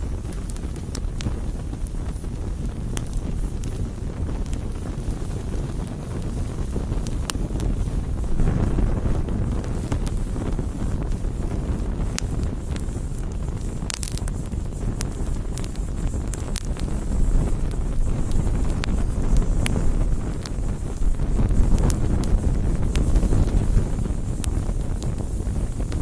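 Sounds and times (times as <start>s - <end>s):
campfire crackles and pops: 0.0s - 26.0s
fire low rumble: 0.0s - 26.0s.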